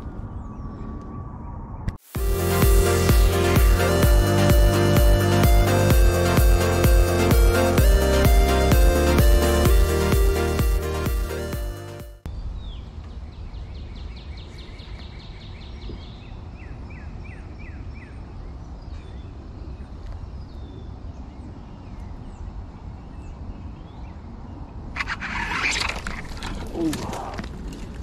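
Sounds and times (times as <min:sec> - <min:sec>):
wild birds calling: 0:25.0 - 0:27.5.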